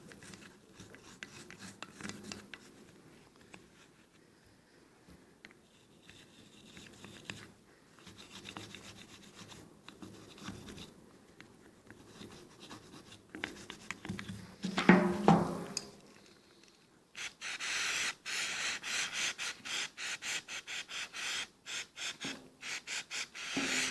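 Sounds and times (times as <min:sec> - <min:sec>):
knocks: 0:14.7 - 0:15.8.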